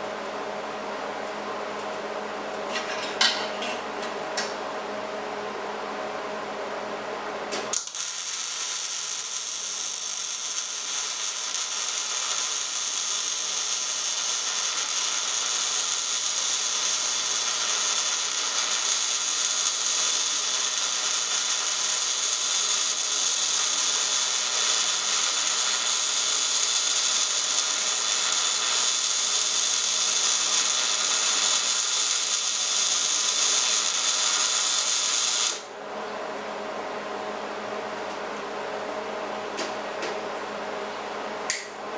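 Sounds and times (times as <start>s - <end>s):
welding arc sizzling: 7.6s - 35.7s.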